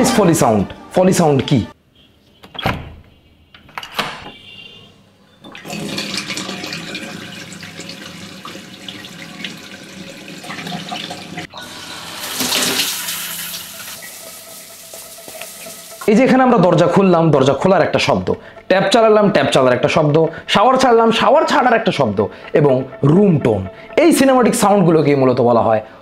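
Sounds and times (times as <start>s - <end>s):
door opening click: 3.6s - 4.4s
water tap running into sink: 5.5s - 16.1s
shower spray: 11.6s - 16.1s.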